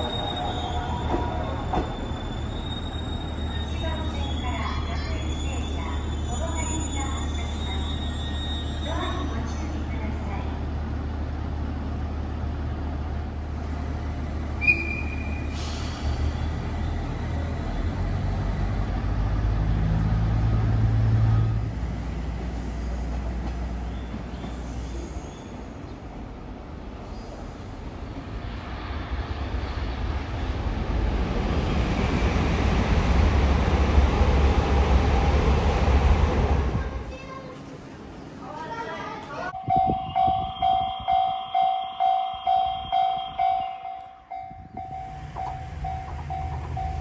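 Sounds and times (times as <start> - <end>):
high-pitched squeal: 0.0 - 9.1
train rumble: 0.0 - 47.0.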